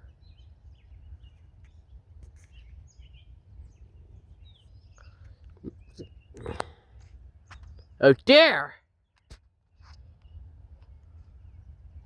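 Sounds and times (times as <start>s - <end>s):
faint bird chirps: 0.0s - 6.9s.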